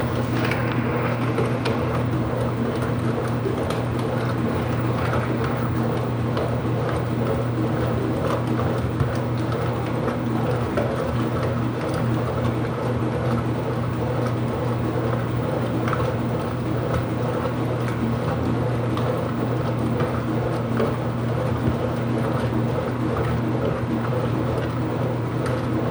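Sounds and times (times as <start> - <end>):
steady low hum: 0.0 - 8.1
water filling washing machine tub: 0.0 - 25.9.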